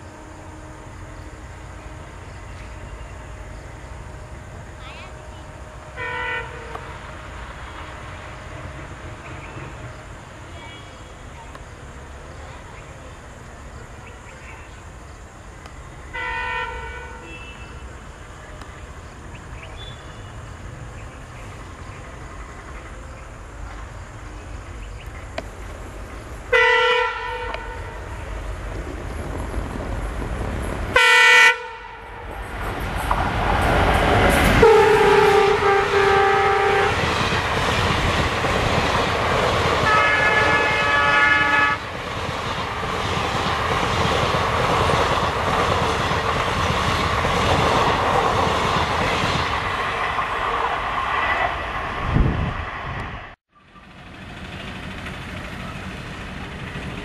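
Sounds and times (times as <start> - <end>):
train coaches rumbling past: 0.0 - 57.0
locomotive horn blasting: 5.9 - 6.9, 16.1 - 17.8, 26.5 - 28.1, 30.9 - 32.2, 34.6 - 37.0, 39.8 - 41.8
wheels clattering on rails: 53.6 - 57.0.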